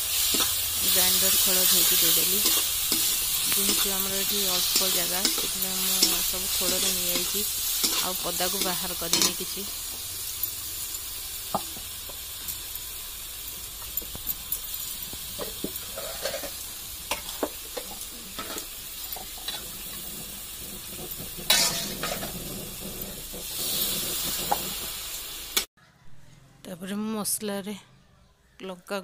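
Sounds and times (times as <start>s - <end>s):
metal spatula scraping a pan: 0.0s - 9.6s, 15.4s - 25.1s
masala sizzling in hot oil: 0.0s - 25.7s.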